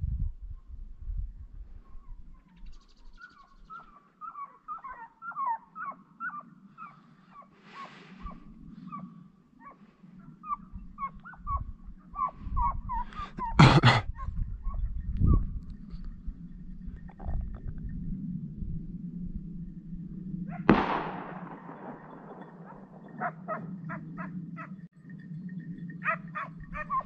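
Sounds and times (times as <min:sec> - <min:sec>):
hounds yelping: 0:03.2 - 0:11.6, 0:21.4 - 0:24.8, 0:26.0 - 0:27.0.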